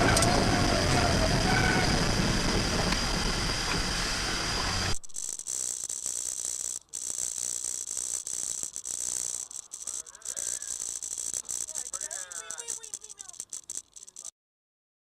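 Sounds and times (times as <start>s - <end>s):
car road and engine noise: 0.0s - 5.0s
high hiss: 0.0s - 14.3s
light rattling and clicking: 7.1s - 14.3s.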